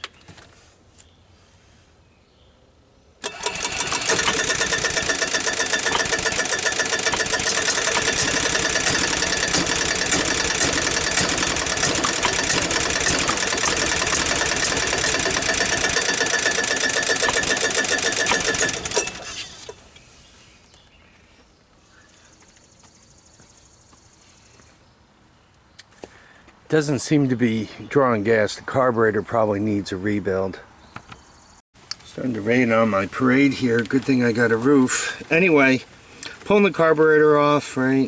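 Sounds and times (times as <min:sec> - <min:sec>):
golf cart engine running: 0:03.2 - 0:20.0.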